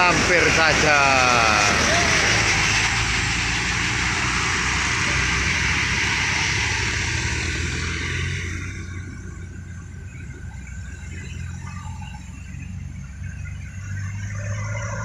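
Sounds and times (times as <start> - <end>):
diesel vehicle engine rumble: 0.0 - 15.0
loud running noise: 0.0 - 15.0.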